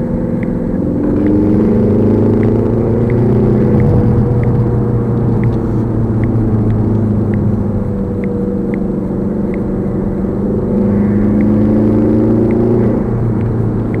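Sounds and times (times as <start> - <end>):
car engine and road noise: 0.0 - 14.0
dashcam clicking: 2.3 - 7.6.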